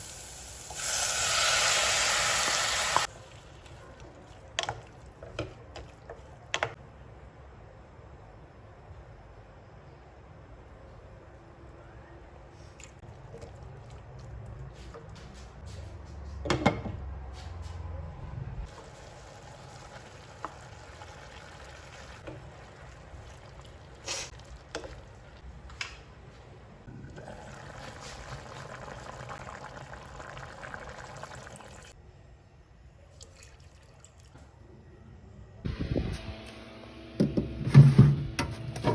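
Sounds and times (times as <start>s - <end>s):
water running into a container: 18.7s - 25.4s, 26.9s - 32.0s.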